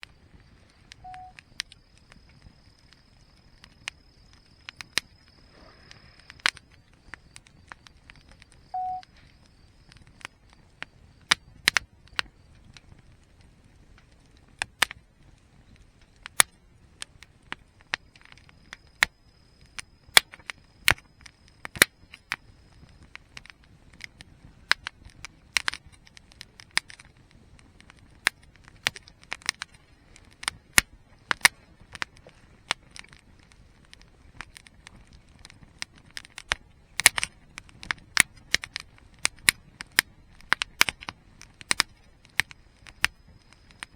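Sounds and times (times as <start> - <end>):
burning wood popping: 0.0 - 43.9
campfire crackling: 0.0 - 43.9
low rumble of flames: 0.0 - 43.9.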